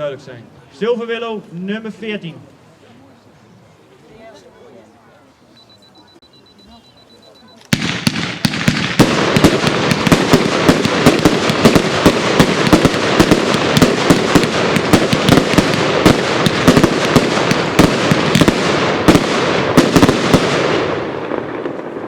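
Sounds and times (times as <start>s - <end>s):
fireworks crackle: 7.6s - 22.0s
fireworks barrage: 7.7s - 22.0s.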